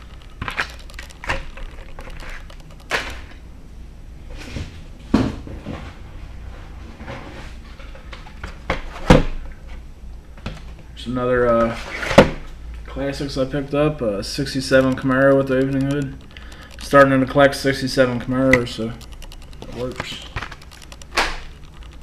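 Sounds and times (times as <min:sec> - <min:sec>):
plastic packaging clicks and clacks: 0:00.0 - 0:03.3, 0:14.5 - 0:17.7, 0:18.5 - 0:22.0.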